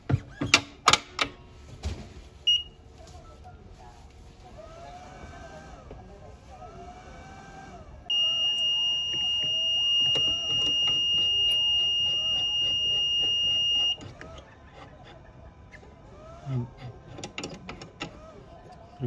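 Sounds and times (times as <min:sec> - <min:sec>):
high-pitched electronic beep: 0:08.1 - 0:14.0.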